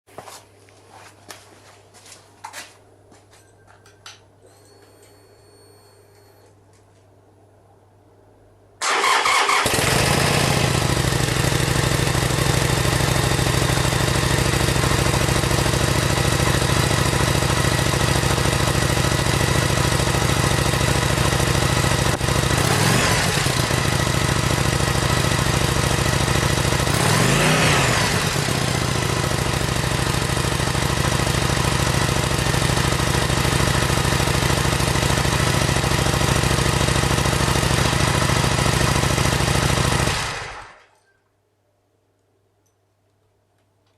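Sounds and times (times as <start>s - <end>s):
motorcycle engine starting and idling: 8.8s - 41.0s.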